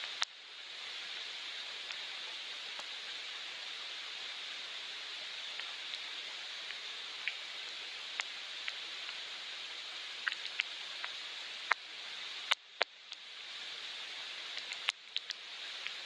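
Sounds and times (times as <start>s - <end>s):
gentle rain hissing: 0.0s - 16.0s
raindrops ticking: 1.6s - 3.1s, 5.3s - 13.3s, 14.5s - 16.0s.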